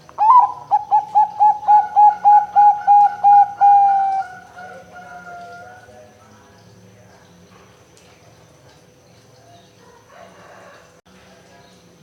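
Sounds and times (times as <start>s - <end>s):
zebra dove cooing: 0.0s - 5.9s.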